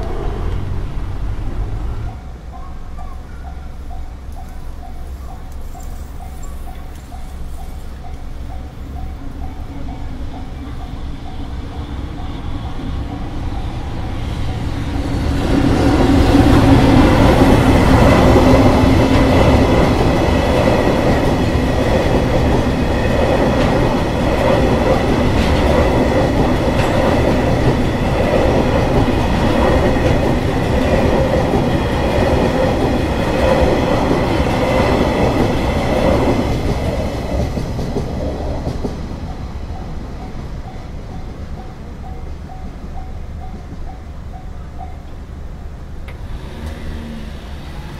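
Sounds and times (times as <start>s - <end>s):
crossing alarm bell tone: 1.9s - 15.2s, 39.2s - 45.6s
train wheels clattering over rail joints: 15.6s - 39.4s.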